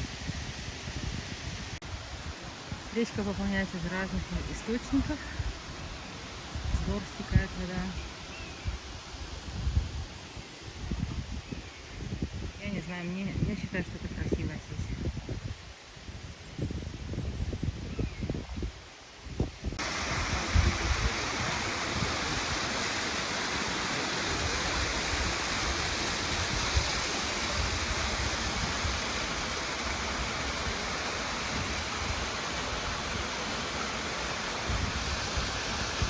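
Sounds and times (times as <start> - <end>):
river water rushing: 19.8 - 36.0.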